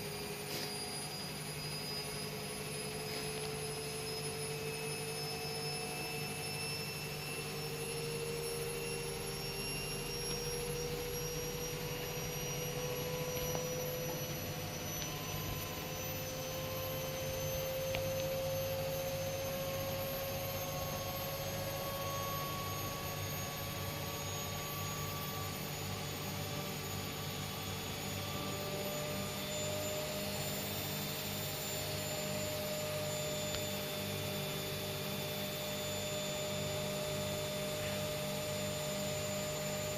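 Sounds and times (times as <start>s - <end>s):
motor whine rising in pitch: 0.0s - 39.9s
washing machine humming: 0.0s - 39.9s.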